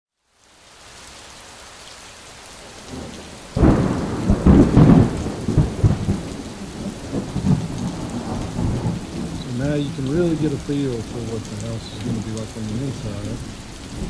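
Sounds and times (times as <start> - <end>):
steady rain falling: 0.1 - 14.0
thunder clap rumbling: 2.9 - 14.0.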